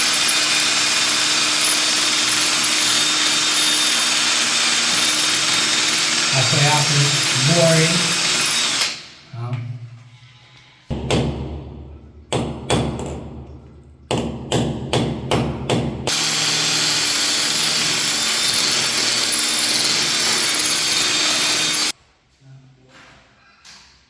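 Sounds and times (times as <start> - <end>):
power drill running: 0.0 - 9.1, 16.1 - 22.0.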